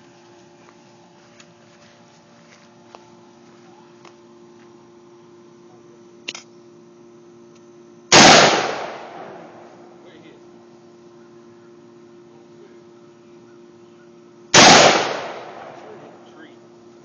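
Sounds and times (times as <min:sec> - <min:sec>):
rifle shot: 0:08.1 - 0:09.8, 0:14.6 - 0:16.2.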